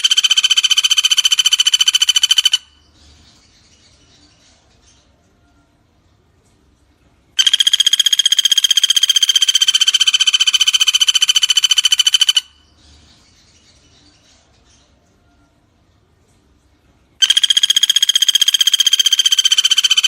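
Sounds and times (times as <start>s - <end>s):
woodpecker rattling trill: 0.0s - 2.8s, 7.4s - 12.6s, 17.2s - 20.0s.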